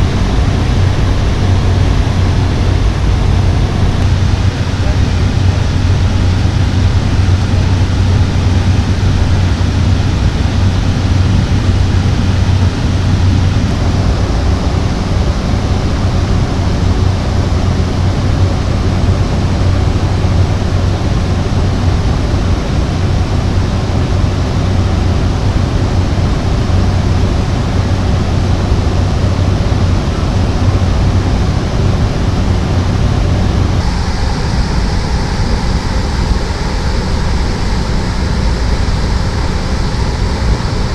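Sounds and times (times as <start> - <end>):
turboprop engine and propeller: 0.0 - 40.9.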